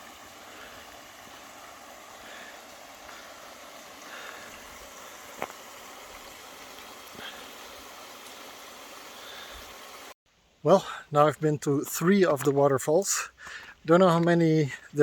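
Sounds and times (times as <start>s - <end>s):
water rushing from small waterfall: 0.0s - 10.2s.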